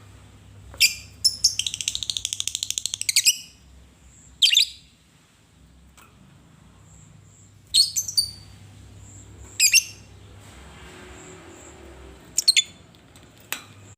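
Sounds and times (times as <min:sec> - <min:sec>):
lovebird chirping: 0:00.8 - 0:05.0, 0:06.9 - 0:10.3, 0:11.2 - 0:12.8.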